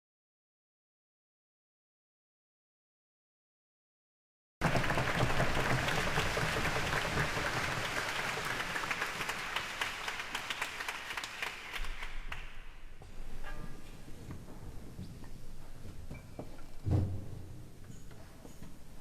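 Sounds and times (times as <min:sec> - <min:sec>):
audience applauding: 0:04.6 - 0:12.7.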